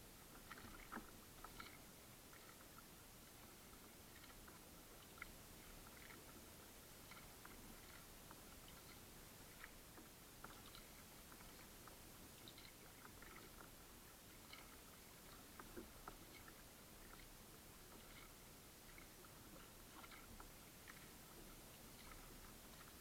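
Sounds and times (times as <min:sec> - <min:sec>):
faint steady hiss: 0:00.0 - 0:23.0
soft small clicks: 0:04.1 - 0:06.4, 0:07.0 - 0:13.7.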